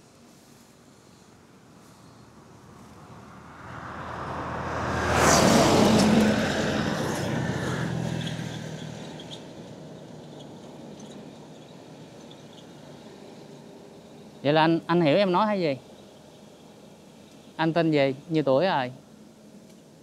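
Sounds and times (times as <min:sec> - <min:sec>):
vehicle driving past: 0:01.9 - 0:13.6.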